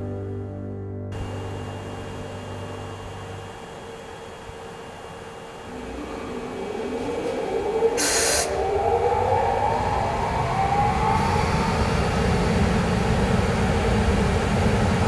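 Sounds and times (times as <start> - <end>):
electric motor whine: 1.1 - 9.2
train rumble: 1.1 - 15.0
air hiss: 8.0 - 8.6.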